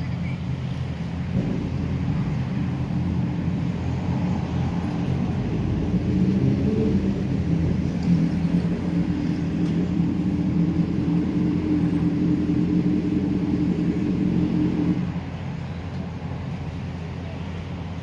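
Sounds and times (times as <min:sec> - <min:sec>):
steady low rumble with fast pulsing: 0:00.0 - 0:18.0.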